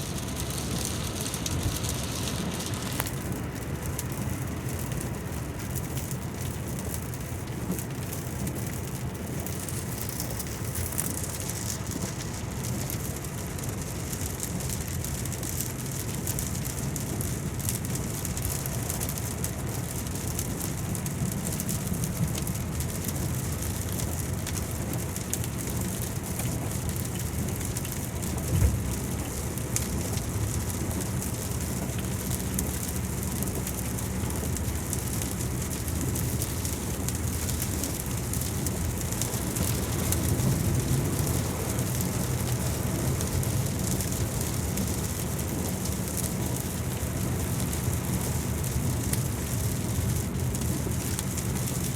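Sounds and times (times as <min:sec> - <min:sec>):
rain pattering: 0:00.0 - 0:51.9
low rumble: 0:28.4 - 0:30.6
low thump: 0:28.5 - 0:29.1.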